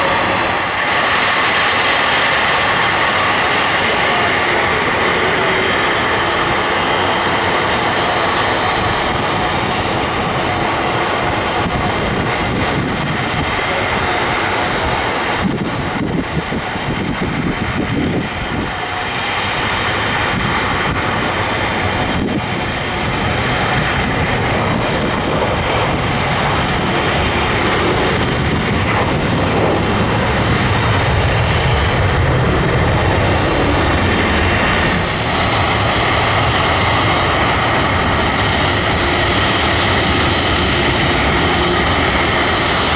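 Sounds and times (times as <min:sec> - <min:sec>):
jet engines running: 0:00.0 - 0:42.9.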